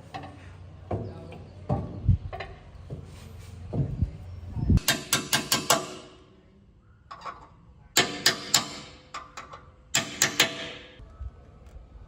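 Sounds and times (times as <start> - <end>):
hammer striking metal: 4.8 - 6.2, 8.0 - 11.0.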